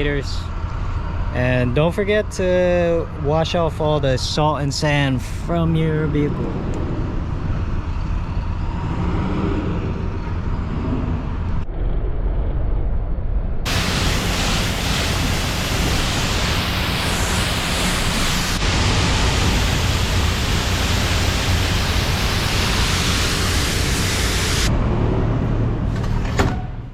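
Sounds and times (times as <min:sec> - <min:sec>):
low steady hum: 0:00.0 - 0:25.8
water spray hosing vehicle: 0:13.7 - 0:24.7.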